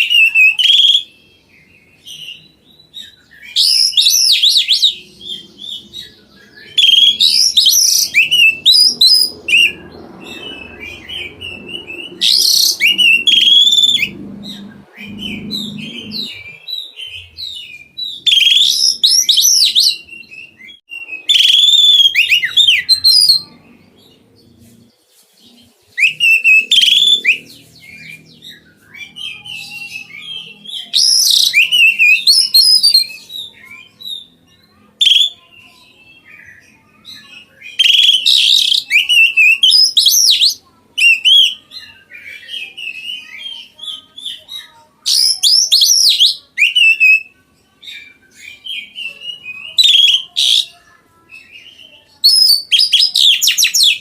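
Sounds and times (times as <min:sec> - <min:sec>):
bird singing high whistles: 0:00.0 - 0:23.4, 0:25.9 - 0:34.3, 0:37.6 - 0:41.6, 0:45.1 - 0:47.3, 0:52.2 - 0:54.0.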